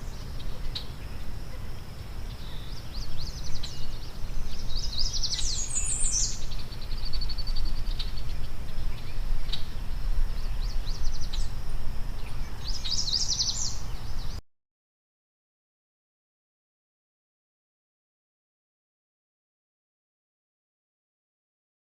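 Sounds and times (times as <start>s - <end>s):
small birds chirping: 0.0s - 14.4s
steady low rumble: 0.0s - 14.4s.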